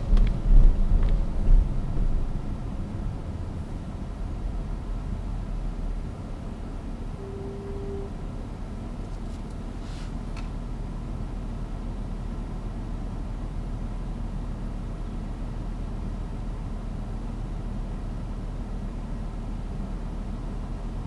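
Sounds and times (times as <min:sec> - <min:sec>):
car engine idling: 0:00.0 - 0:07.1
brief soft hiss: 0:09.8 - 0:10.2.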